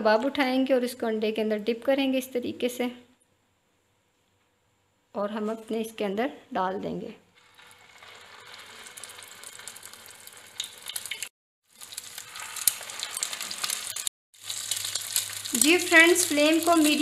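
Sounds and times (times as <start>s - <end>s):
cutlets sizzling in hot oil: 7.4s - 17.0s
sharp oil crackles: 7.4s - 17.0s.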